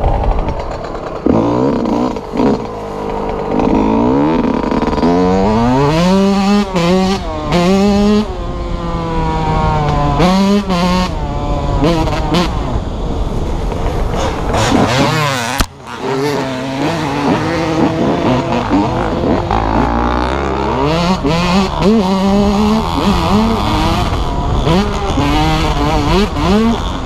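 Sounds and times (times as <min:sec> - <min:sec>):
dirt bike engines revving: 0:00.0 - 0:27.0.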